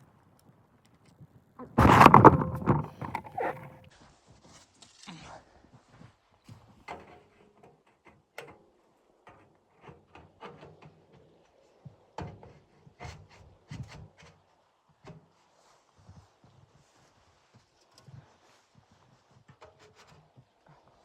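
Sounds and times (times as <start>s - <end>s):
soft knocks and thuds: 1.6s - 3.8s.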